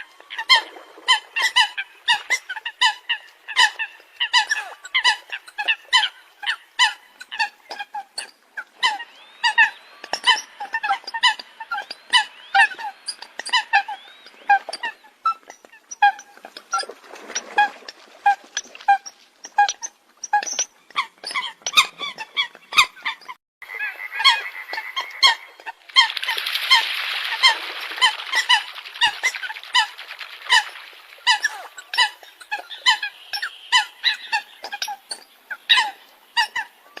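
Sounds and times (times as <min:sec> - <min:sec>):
coots calling: 0:20.9 - 0:37.0.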